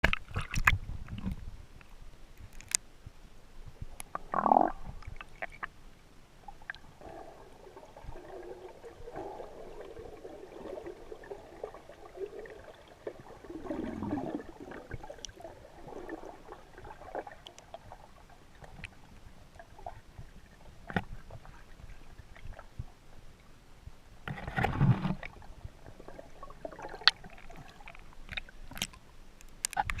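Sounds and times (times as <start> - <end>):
small clicks underwater: 0.0 - 2.9, 3.9 - 5.8, 6.5 - 6.9, 14.8 - 15.4, 17.2 - 17.9, 18.6 - 19.9, 26.8 - 30.0.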